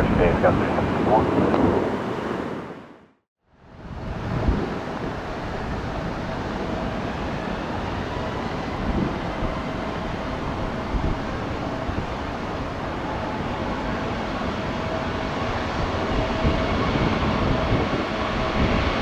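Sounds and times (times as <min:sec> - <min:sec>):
jet engines running: 0:00.0 - 0:03.0, 0:04.2 - 0:19.0.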